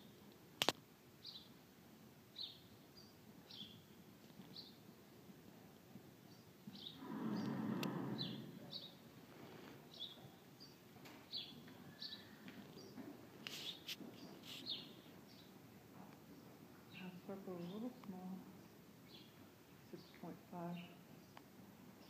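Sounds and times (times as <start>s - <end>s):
small birds chirping: 1.2s - 1.5s, 2.3s - 4.8s, 6.2s - 9.1s, 9.8s - 15.6s, 16.2s - 22.0s.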